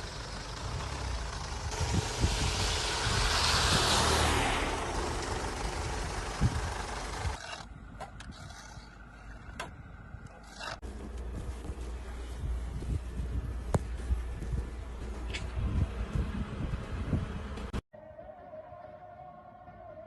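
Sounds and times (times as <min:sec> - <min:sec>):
traffic hiss: 0:00.0 - 0:07.3
vehicle engines rumbling: 0:00.0 - 0:17.8
wind: 0:00.0 - 0:20.0.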